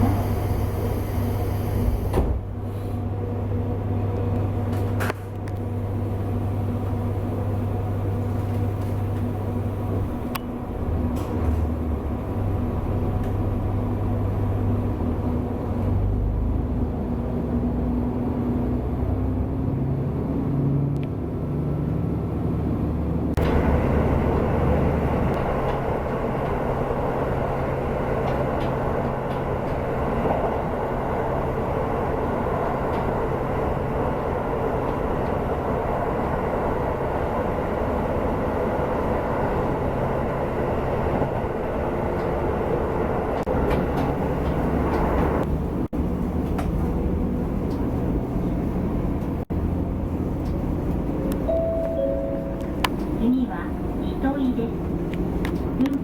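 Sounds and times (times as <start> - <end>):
train interior rumble and hum: 0.0 - 56.0.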